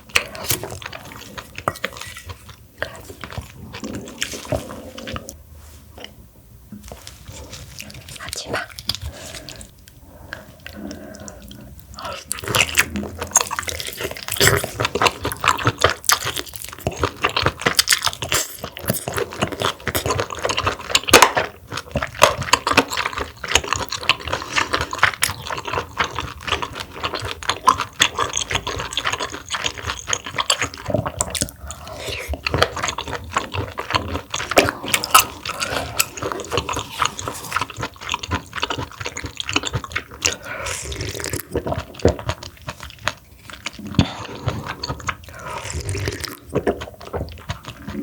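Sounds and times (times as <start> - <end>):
slurping: 0.0 - 5.4, 6.9 - 21.3, 21.9 - 48.0
wet chewing and smacking: 0.0 - 5.4, 6.8 - 48.0.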